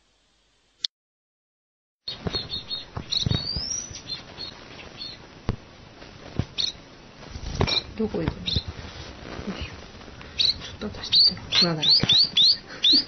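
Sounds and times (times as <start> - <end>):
pet bird chirping: 2.1 - 5.2, 6.6 - 6.8, 7.7 - 8.7, 10.4 - 13.0
bird rising whistle: 3.4 - 4.1.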